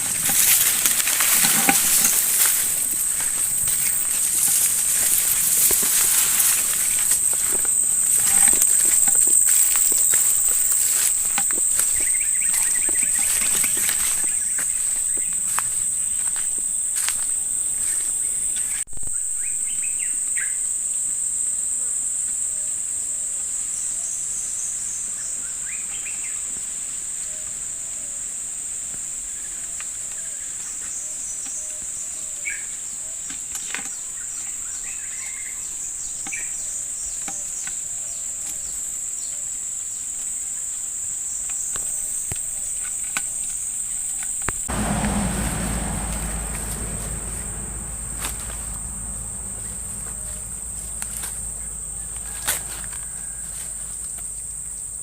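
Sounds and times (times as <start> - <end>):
low rushing noise: 0.0 - 17.8, 44.6 - 52.2
insects droning: 0.0 - 55.0.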